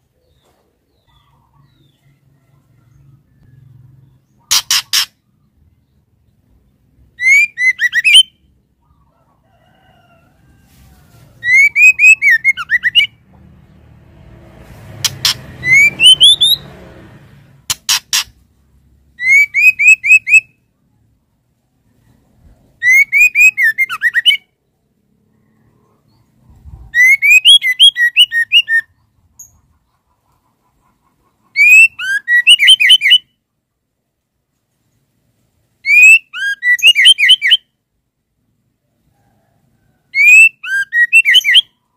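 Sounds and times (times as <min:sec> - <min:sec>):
bird chirping calls: 0:00.0 - 0:09.2, 0:11.3 - 0:14.0, 0:14.9 - 0:21.0, 0:21.8 - 0:33.4, 0:35.8 - 0:37.7, 0:40.1 - 0:41.9.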